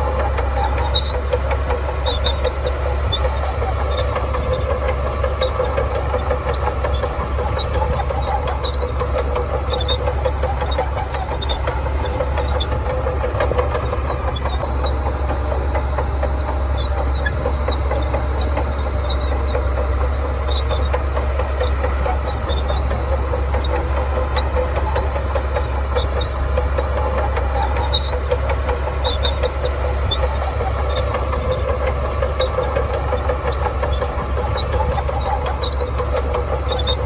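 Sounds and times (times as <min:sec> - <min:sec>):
bulldozer diesel engine rumbling: 0:00.0 - 0:37.0.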